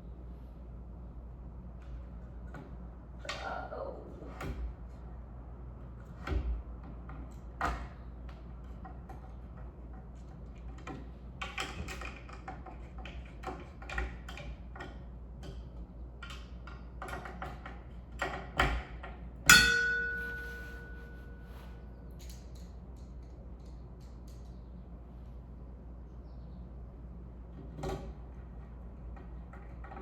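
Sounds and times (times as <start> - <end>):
sharp ringing metallic strike: 19.5 - 21.2.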